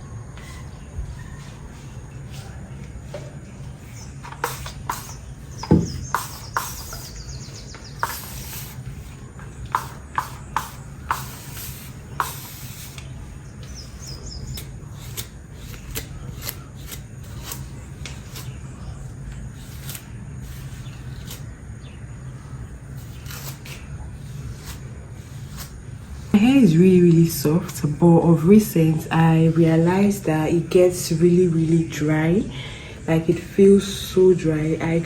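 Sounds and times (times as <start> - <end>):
low steady hum: 0.0 - 35.0
trilling bird chirps: 3.8 - 8.8.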